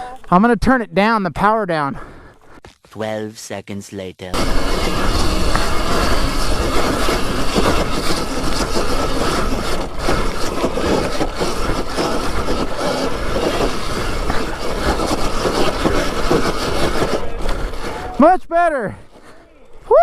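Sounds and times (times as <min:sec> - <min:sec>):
wind and tyre noise: 0:04.4 - 0:18.2.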